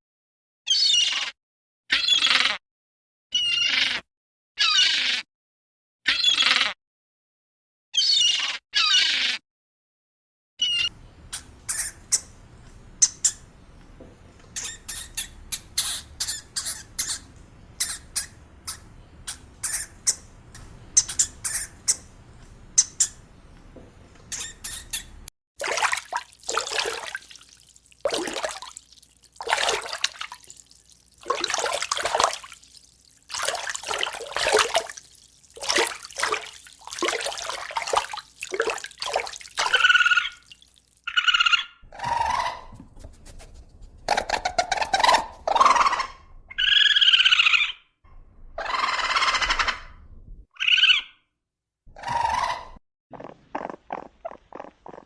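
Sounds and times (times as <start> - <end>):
animal squeaks: 0.7 - 2.6, 3.4 - 4.0, 4.6 - 5.3, 6.1 - 6.8, 8.0 - 9.4, 44.1 - 47.8
rough animal calls: 25.7 - 42.8.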